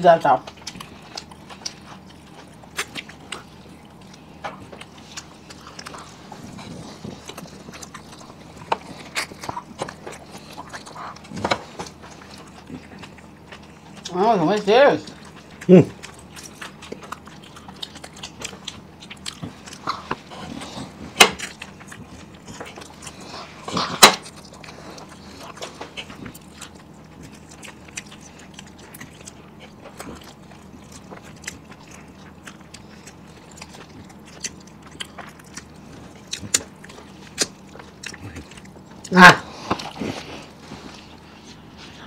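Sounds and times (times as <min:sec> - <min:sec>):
person chewing food: 0:00.0 - 0:42.0
wet mouth clicks and smacks: 0:23.8 - 0:40.0.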